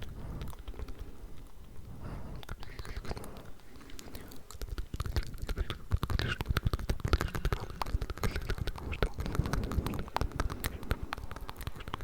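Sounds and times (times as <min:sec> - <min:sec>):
wet mouth clicks and smacks: 0:00.0 - 0:12.0
person whispering: 0:01.8 - 0:06.5.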